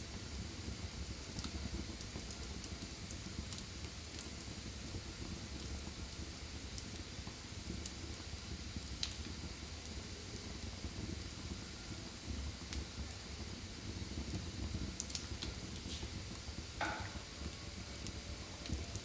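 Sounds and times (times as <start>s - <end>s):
wood fire crackling: 0.0s - 19.0s
sharp pop of fire: 16.8s - 17.6s.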